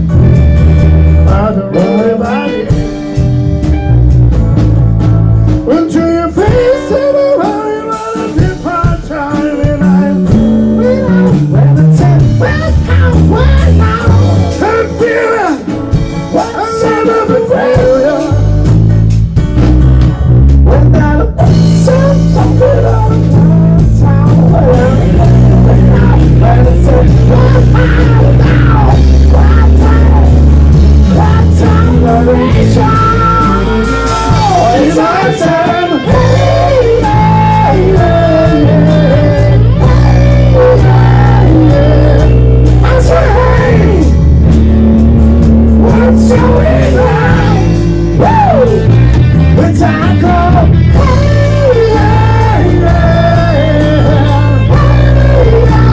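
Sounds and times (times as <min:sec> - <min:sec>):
bass guitar: 0:00.0 - 0:55.9
guitar: 0:00.0 - 0:55.9
person singing: 0:00.9 - 0:03.0, 0:05.6 - 0:18.7, 0:20.6 - 0:44.2, 0:45.7 - 0:55.9.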